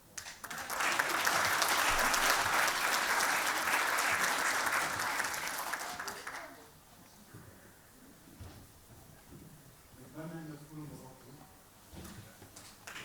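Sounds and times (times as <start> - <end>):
audience applauding: 0.2 - 6.6.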